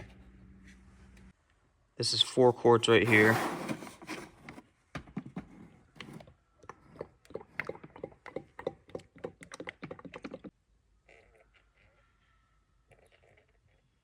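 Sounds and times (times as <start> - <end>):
oil glugging from plastic jug: 6.6 - 10.5.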